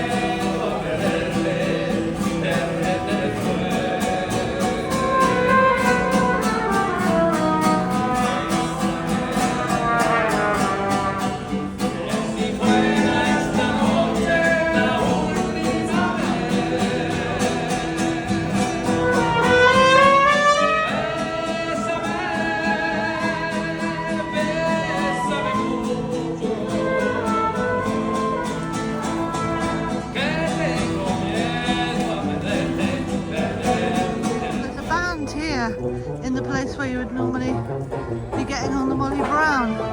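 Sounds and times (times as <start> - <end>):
country band with singer: 0.0 - 39.9.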